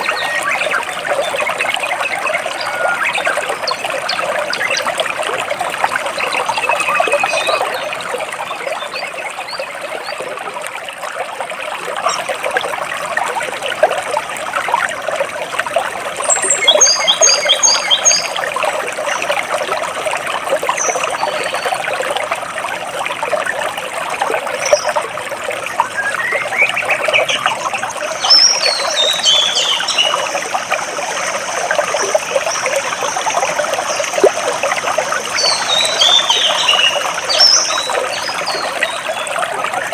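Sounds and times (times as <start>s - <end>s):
birds chirping: 0.0s - 5.0s, 12.0s - 12.4s, 16.2s - 18.4s, 25.8s - 34.4s, 35.2s - 39.4s
stream splashing between rocks: 0.0s - 39.9s.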